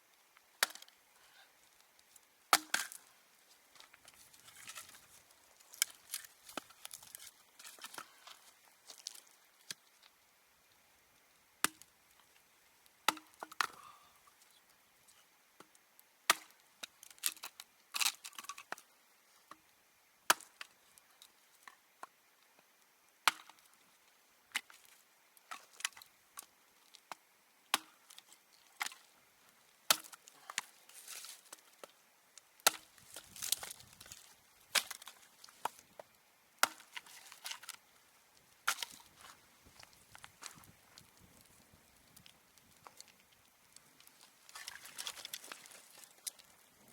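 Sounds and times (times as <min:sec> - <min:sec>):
axe strikes chopping wood: 0:02.5 - 0:03.0, 0:32.6 - 0:32.9, 0:36.6 - 0:37.1.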